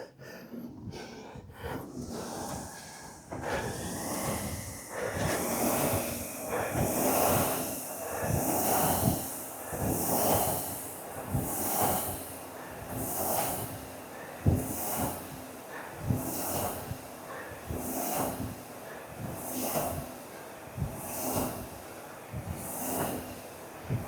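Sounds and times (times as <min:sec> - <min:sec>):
hard breathing: 0:00.0 - 0:10.8
fan flywheel whooshing: 0:02.0 - 0:10.8.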